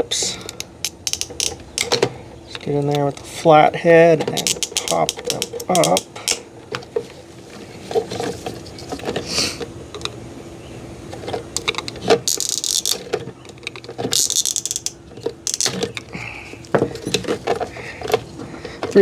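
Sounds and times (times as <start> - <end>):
plastic clips clicking and knocking: 0.2 - 3.3, 4.1 - 6.5, 11.2 - 19.0.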